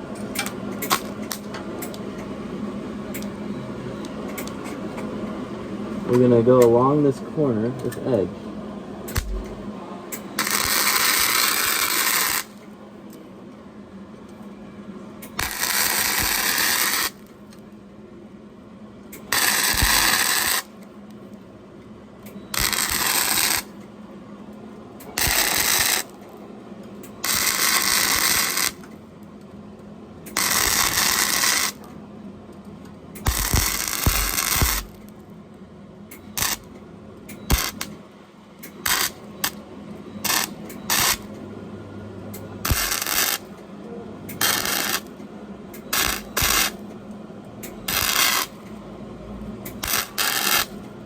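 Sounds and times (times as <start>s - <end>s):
welding arc crackling: 9.1s - 9.6s, 10.4s - 12.6s, 15.4s - 17.3s, 19.2s - 20.7s, 22.5s - 23.8s, 25.2s - 26.2s, 27.2s - 28.9s, 30.3s - 31.8s, 33.2s - 35.1s, 36.4s - 36.7s, 37.5s - 37.9s, 38.8s - 39.6s, 40.2s - 41.3s, 42.6s - 43.5s, 44.4s - 45.1s, 45.9s - 46.8s, 47.7s - 48.6s, 49.7s - 50.8s
low hum: 9.1s - 9.8s.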